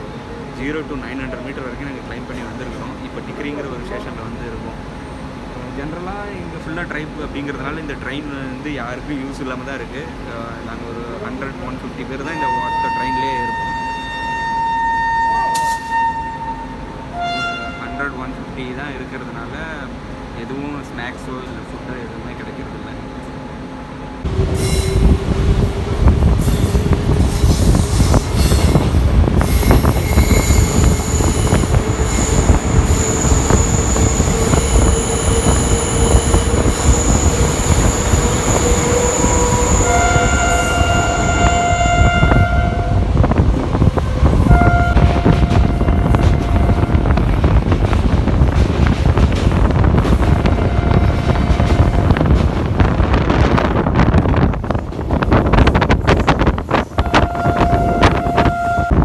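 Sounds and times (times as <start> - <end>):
train horn blasts: 12.2 - 18.2, 24.2 - 47.6, 50.4 - 52.3, 57.0 - 59.0
train wheels rumbling on track: 24.2 - 59.0
high-pitched wheel squeal: 29.4 - 42.8.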